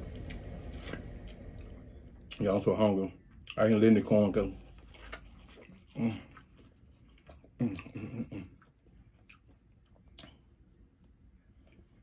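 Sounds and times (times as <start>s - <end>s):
chewing and biting corn: 4.6s - 10.5s.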